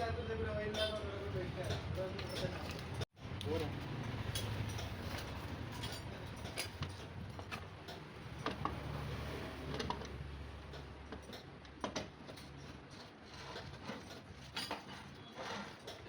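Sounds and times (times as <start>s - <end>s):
metal tools clinking: 0.6s - 8.0s, 12.2s - 16.0s.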